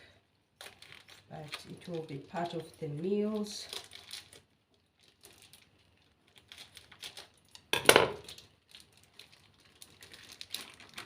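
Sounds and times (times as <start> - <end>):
kitchenware clattering: 7.8 - 8.3.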